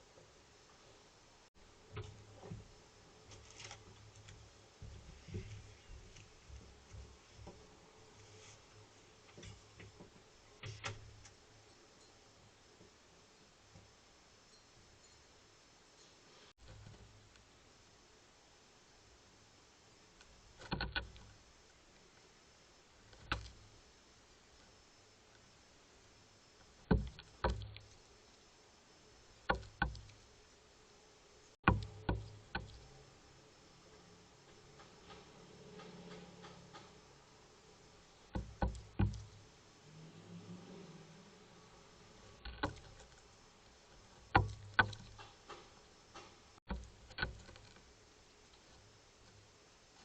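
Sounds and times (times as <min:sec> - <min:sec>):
sharp taps and knocks: 0:26.8 - 0:27.9, 0:29.5 - 0:30.2, 0:31.6 - 0:32.9, 0:38.3 - 0:39.4, 0:44.1 - 0:47.8.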